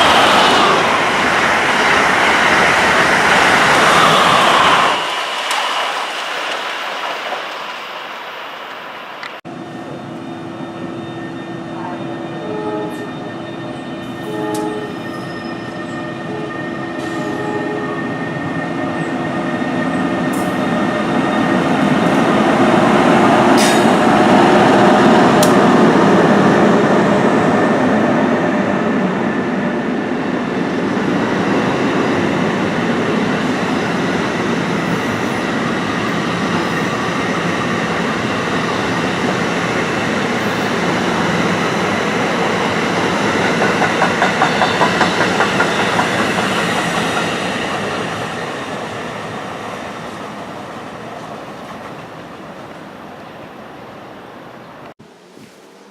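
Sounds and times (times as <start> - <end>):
train rushing past: 0.0 - 55.9
train horn notes: 11.4 - 13.3, 14.1 - 15.1, 16.1 - 18.1.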